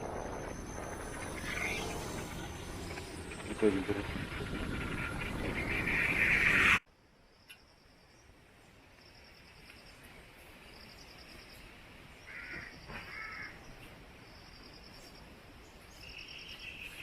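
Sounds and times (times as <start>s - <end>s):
insect trill: 0.0s - 4.0s
crow cawing: 12.3s - 13.6s.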